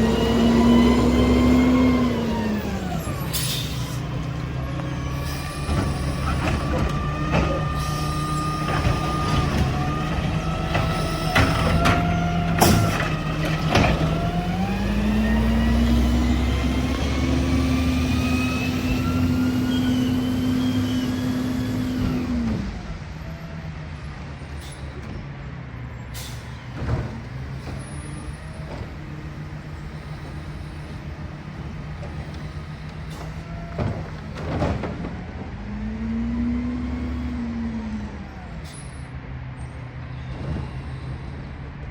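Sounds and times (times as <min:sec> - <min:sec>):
clanks and squeaks: 0:03.1 - 0:14.6.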